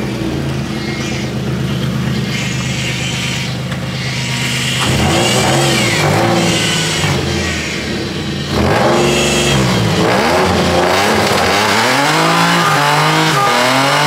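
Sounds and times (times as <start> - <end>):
car engine running and revving: 0.0 - 14.0.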